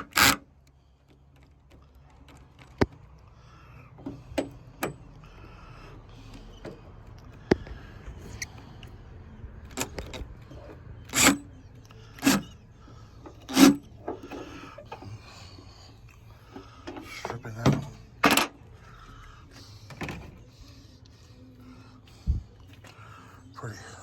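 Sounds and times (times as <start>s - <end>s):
cordless drill bursts: 0.0s - 0.4s, 11.1s - 11.4s
tools and hardware clinking: 9.7s - 11.5s.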